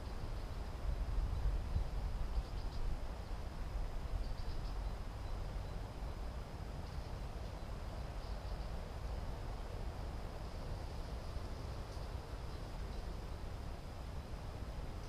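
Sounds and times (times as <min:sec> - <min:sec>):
high insect trill: 0:01.8 - 0:03.4, 0:04.1 - 0:15.0
chirps: 0:04.2 - 0:05.8.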